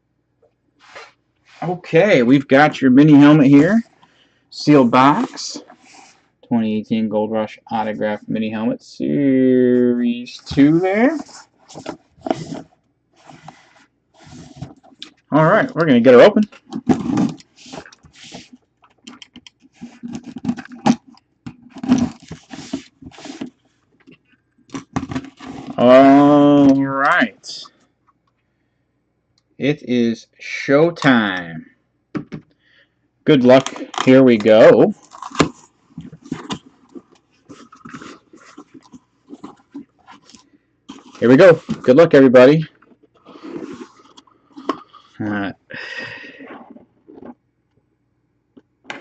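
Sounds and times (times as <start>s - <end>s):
scraping and rustling: 4.8s - 6.3s, 10.3s - 15.8s, 16.4s - 26.8s, 33.6s - 45.2s
hands opening a box: 10.6s - 15.8s, 16.4s - 25.8s, 33.5s - 42.0s, 42.8s - 44.9s.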